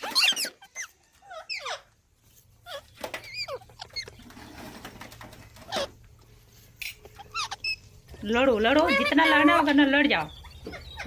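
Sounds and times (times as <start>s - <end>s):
parrots squawking: 0.0s - 2.0s, 2.6s - 4.4s, 5.6s - 6.0s, 7.0s - 8.0s, 8.7s - 11.0s.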